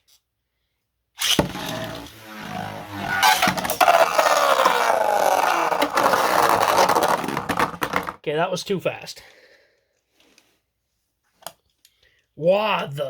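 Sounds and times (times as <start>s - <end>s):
spinning tops whirring: 1.2s - 8.1s
tops scraping around stadium: 1.4s - 7.8s.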